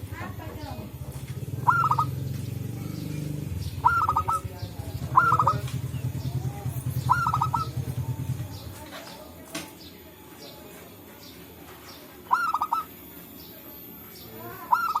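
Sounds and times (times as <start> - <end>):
doves calling: 0.0 - 15.0
low rolling rumble: 2.1 - 8.8.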